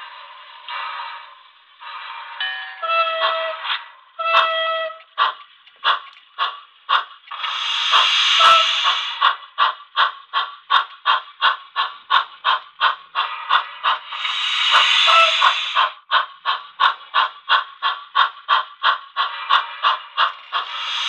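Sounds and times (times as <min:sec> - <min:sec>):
steam hiss: 0:00.0 - 0:02.4, 0:05.2 - 0:21.0
steam locomotive chuffs: 0:00.0 - 0:21.0
whistle toot: 0:15.0 - 0:15.5.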